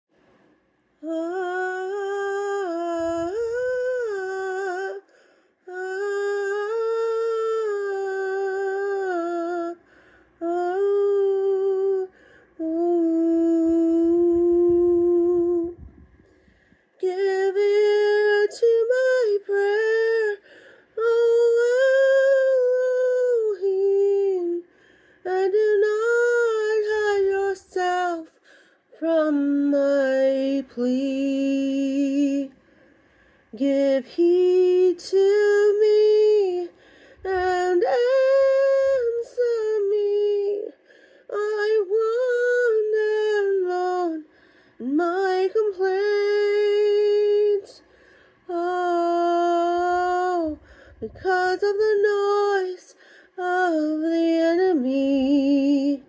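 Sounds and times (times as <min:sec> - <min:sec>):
woman singing wordless melody: 0:01.0 - 0:32.7, 0:33.4 - 0:56.0
singer breathing: 0:09.8 - 0:10.4, 0:16.2 - 0:17.0, 0:20.4 - 0:21.0, 0:24.7 - 0:25.3, 0:32.6 - 0:33.6, 0:36.7 - 0:37.3, 0:44.3 - 0:44.8, 0:47.9 - 0:48.4, 0:50.6 - 0:51.1, 0:53.0 - 0:53.4.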